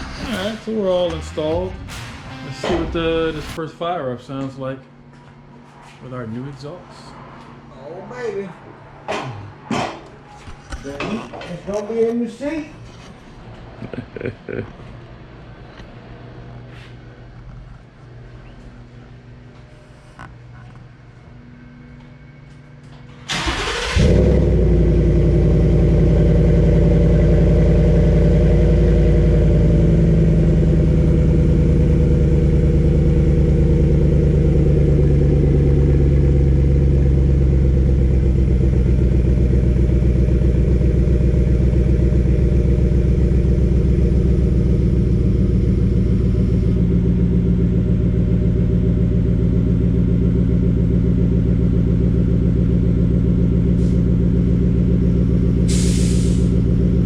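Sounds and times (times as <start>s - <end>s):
engine idling with deep exhaust: 24.0s - 57.0s.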